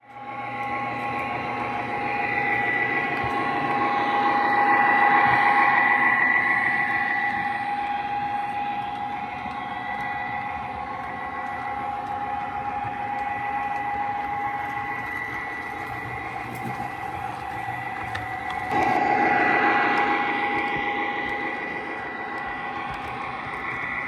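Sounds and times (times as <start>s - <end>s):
electric motor whine: 0.2s - 24.0s
metal wheels rolling on track: 14.1s - 19.0s.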